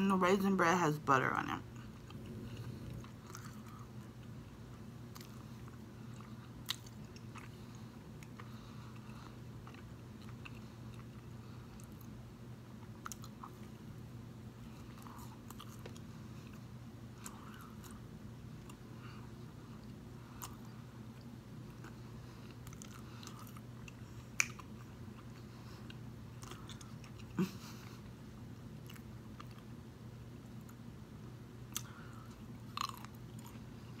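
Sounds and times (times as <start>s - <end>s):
steady low hum: 0.0s - 34.0s
biting and chewing toast: 5.1s - 12.2s, 19.8s - 27.5s, 32.7s - 34.0s.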